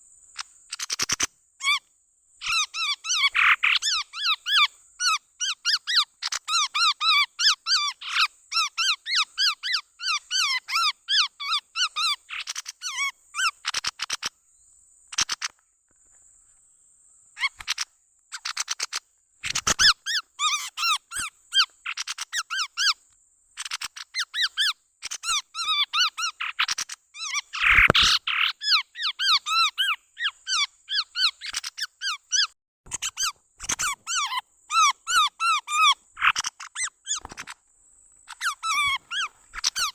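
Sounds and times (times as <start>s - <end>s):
bird squeaky chirping calls: 0.4s - 14.3s, 15.1s - 15.5s, 17.4s - 23.0s, 23.6s - 37.6s, 38.2s - 39.9s.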